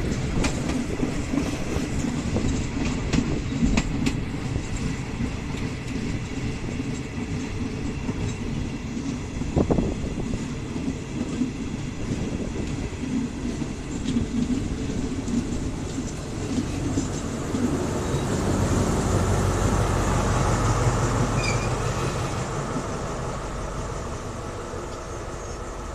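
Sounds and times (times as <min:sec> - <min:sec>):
train wheels rumbling: 0:00.0 - 0:25.9
locomotive engine drone: 0:13.7 - 0:25.9.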